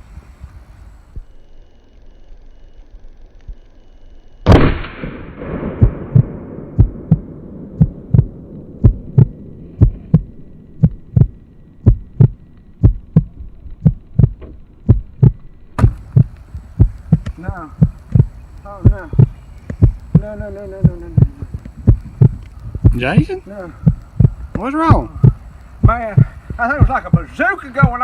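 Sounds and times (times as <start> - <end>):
loud rifle shot with echo: 4.5 - 9.6
heartbeat thumps: 5.6 - 28.0.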